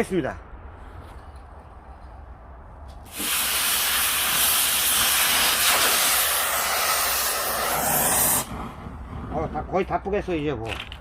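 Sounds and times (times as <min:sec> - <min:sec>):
cutting torch hissing: 0:03.0 - 0:09.8.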